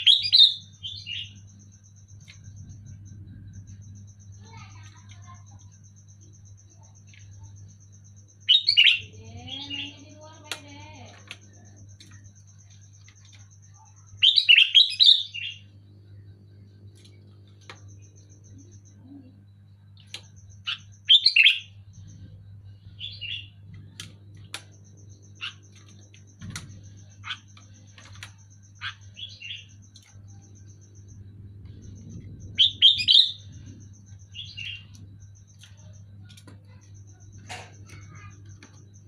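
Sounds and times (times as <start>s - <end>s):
low hum: 0.0s - 9.7s, 15.2s - 39.0s.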